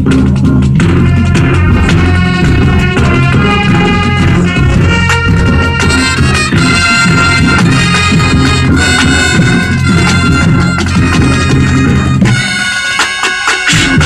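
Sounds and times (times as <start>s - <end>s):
sharp percussion hits: 0.0s - 14.0s
school band playing: 0.7s - 14.0s.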